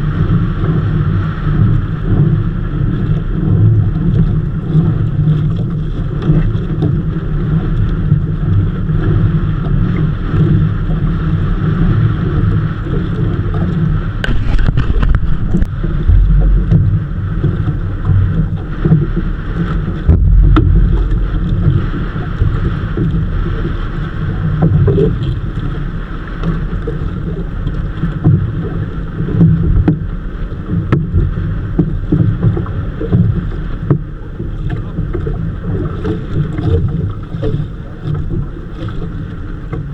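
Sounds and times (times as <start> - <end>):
boat engine running: 0.0 - 39.9
wind buffeting microphone: 0.0 - 39.9
low thumps: 14.1 - 24.9.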